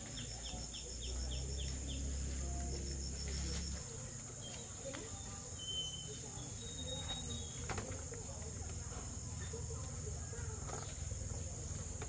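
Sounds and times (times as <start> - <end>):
insect chirps: 0.0 - 8.3
insects droning: 0.0 - 12.0.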